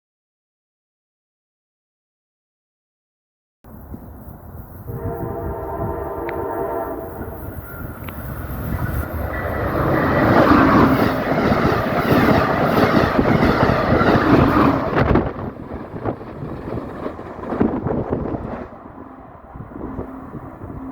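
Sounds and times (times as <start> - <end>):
train passing on rails: 3.7 - 20.9
train horn: 4.8 - 7.9, 18.8 - 20.9.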